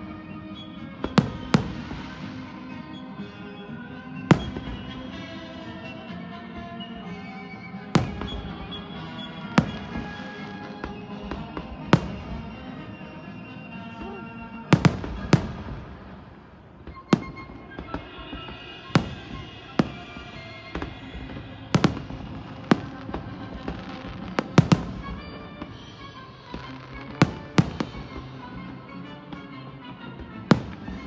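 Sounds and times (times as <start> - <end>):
music playing: 0.0 - 31.0
fireworks bangs: 1.0 - 2.5, 4.3 - 5.7, 7.8 - 13.4, 14.7 - 28.4, 30.4 - 31.0
fireworks crackles: 1.0 - 2.6, 4.2 - 5.8, 7.8 - 13.4, 14.6 - 29.0, 30.2 - 31.0.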